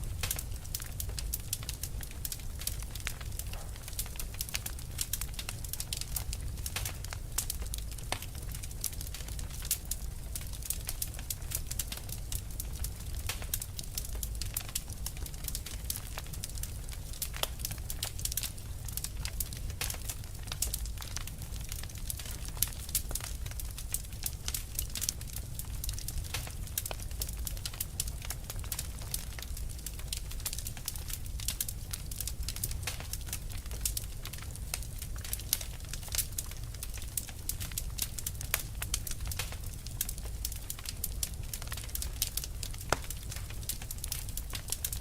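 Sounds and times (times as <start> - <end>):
fire crackling: 0.0 - 45.0.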